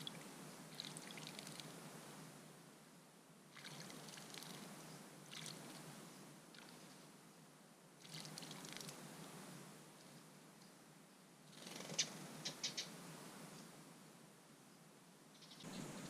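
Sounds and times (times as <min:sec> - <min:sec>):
small bird splashing in water: 0:00.0 - 0:01.7, 0:03.5 - 0:04.7, 0:05.3 - 0:05.8, 0:08.0 - 0:09.0.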